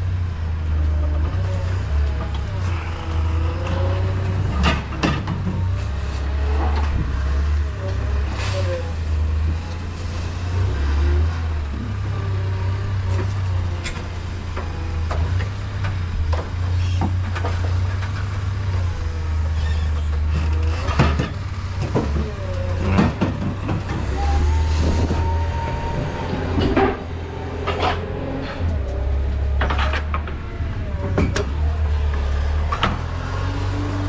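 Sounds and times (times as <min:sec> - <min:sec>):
forklift engine humming: 0:00.0 - 0:34.0
load clunks and knocks: 0:20.0 - 0:33.1
short steady whine: 0:23.6 - 0:30.5.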